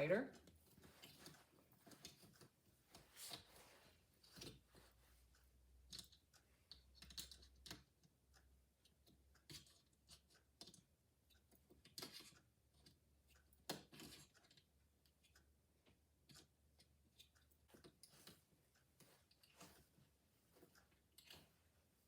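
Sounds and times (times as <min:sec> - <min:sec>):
soft plastic rustles: 0:00.4 - 0:05.3.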